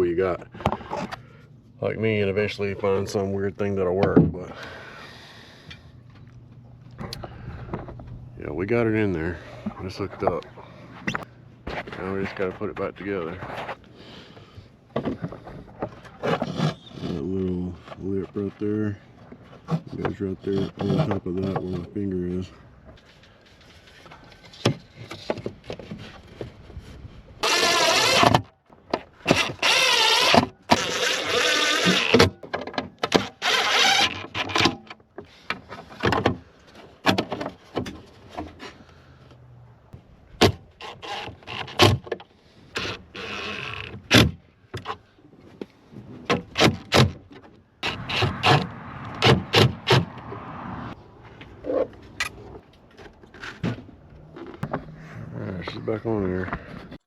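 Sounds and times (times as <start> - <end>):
small electric motor whirring: 27.4 - 28.3, 29.3 - 32.2, 33.3 - 34.3.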